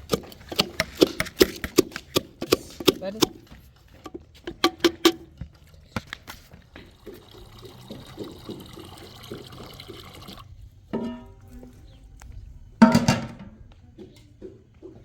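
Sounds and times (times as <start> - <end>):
liquid being poured: 6.9 - 10.5.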